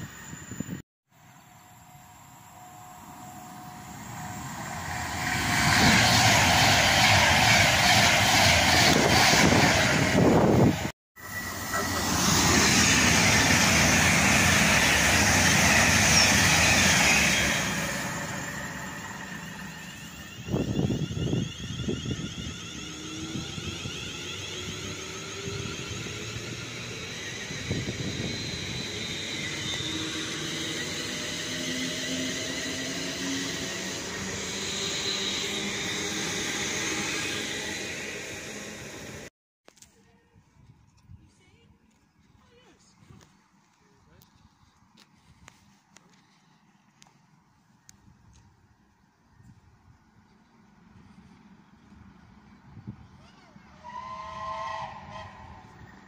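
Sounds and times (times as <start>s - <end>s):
electric train passing at speed: 0.0s - 39.3s, 46.0s - 56.0s
rising electric motor whine: 0.0s - 39.3s.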